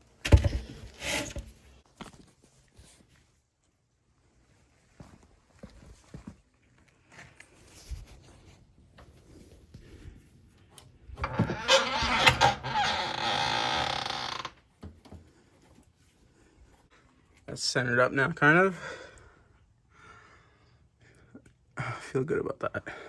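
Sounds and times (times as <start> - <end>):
creaking grinding scrape: 0.2 - 1.8, 11.2 - 14.5.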